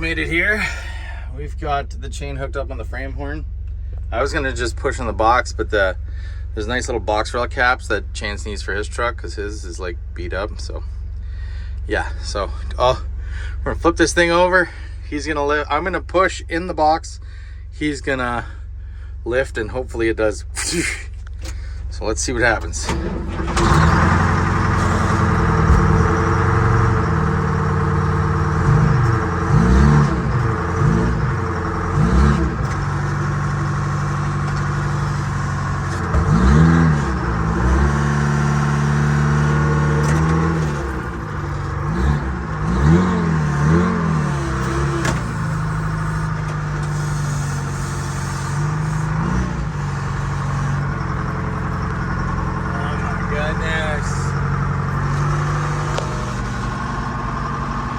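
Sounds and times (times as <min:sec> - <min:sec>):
vehicle engine revving under load: 0:22.5 - 0:57.9.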